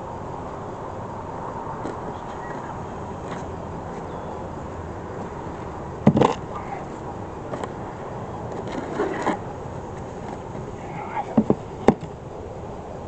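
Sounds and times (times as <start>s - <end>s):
background hum: 0.0s - 13.0s
wooden hive parts knocking: 6.0s - 6.4s, 11.2s - 12.2s.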